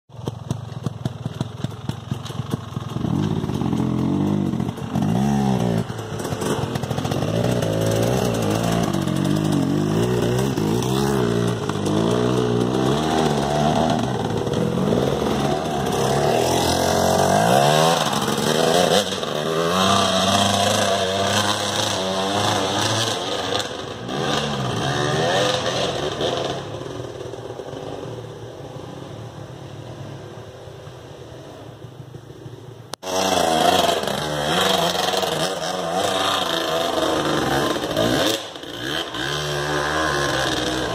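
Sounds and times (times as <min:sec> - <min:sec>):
two-stroke engine revving: 0:00.2 - 0:27.4, 0:33.0 - 0:40.9.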